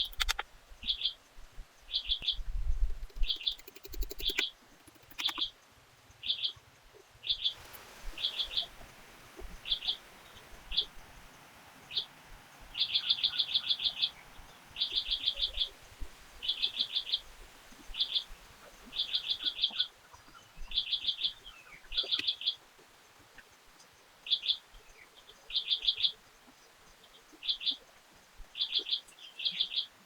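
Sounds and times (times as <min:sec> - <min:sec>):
bird chipping calls: 0:00.0 - 0:01.1, 0:03.0 - 0:05.5, 0:07.3 - 0:22.6.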